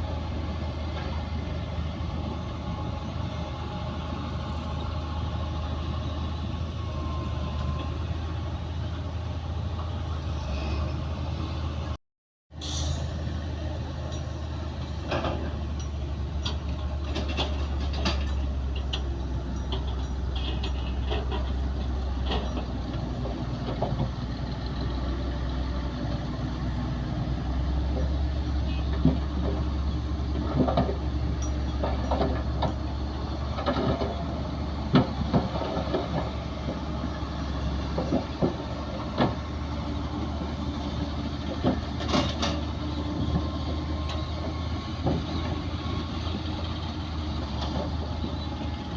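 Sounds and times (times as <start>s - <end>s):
bulldozer diesel engine droning: 0.0s - 48.9s
bulldozer clanks and knocks: 0.3s - 3.3s, 13.8s - 48.9s.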